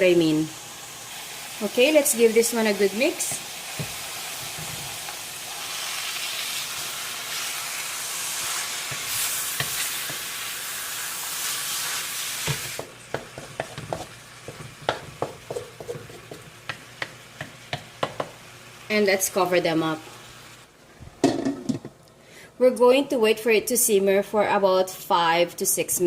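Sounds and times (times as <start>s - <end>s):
meat sizzling in a pan: 0.0s - 20.6s
utensil knocking against pan: 12.5s - 18.4s.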